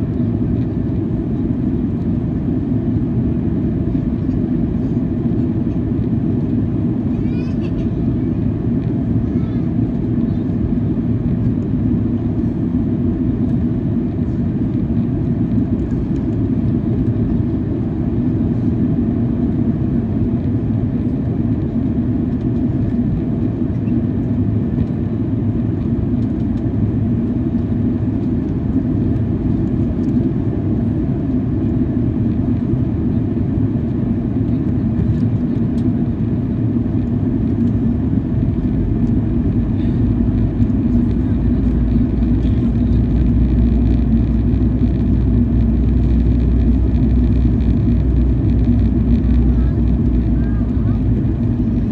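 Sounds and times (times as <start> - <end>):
airliner cabin drone: 0.0 - 51.9
steady low hum: 0.0 - 51.9.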